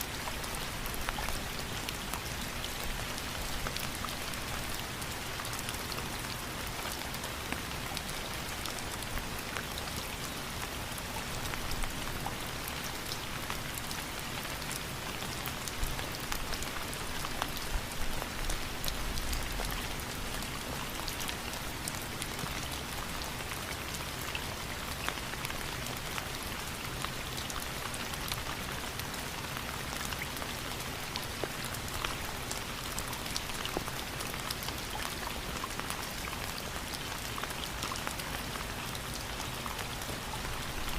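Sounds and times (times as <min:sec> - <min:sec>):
raindrops pattering on a surface: 0:00.0 - 0:40.9
steady rainfall: 0:00.0 - 0:40.9.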